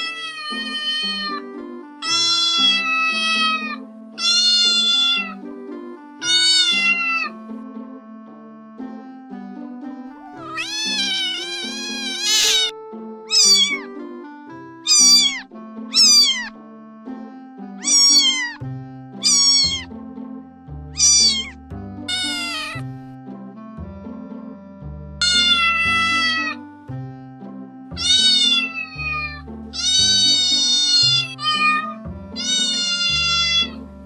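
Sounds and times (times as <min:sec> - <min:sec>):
cats meowing: 0:00.0 - 0:05.5, 0:06.2 - 0:07.4, 0:10.2 - 0:14.0, 0:14.9 - 0:16.5, 0:17.8 - 0:18.6, 0:19.2 - 0:19.9, 0:21.0 - 0:22.8, 0:25.2 - 0:26.6, 0:28.0 - 0:33.8
background music sustained notes: 0:00.0 - 0:34.0.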